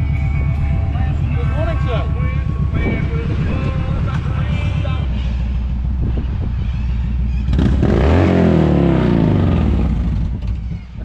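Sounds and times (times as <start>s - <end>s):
engine idling: 0.0s - 11.0s
motorcycle passing by: 6.0s - 11.0s.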